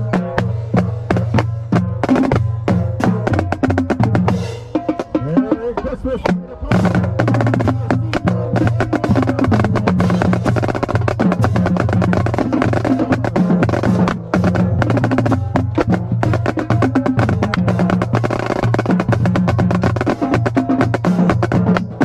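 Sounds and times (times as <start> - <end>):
bass drum notes: 0.0 - 22.0.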